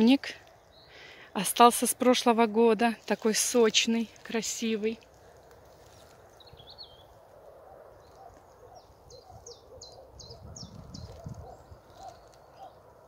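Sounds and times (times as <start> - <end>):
faint low bird calls: 5.1 - 13.0.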